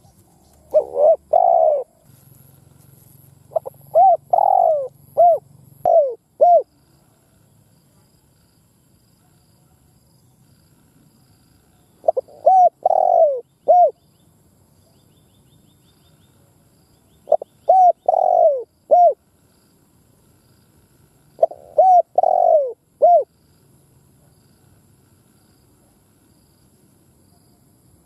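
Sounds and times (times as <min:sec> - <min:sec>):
dove cooing: 0:00.0 - 0:02.1, 0:03.5 - 0:06.9, 0:12.0 - 0:14.0, 0:17.2 - 0:19.3, 0:21.3 - 0:23.4.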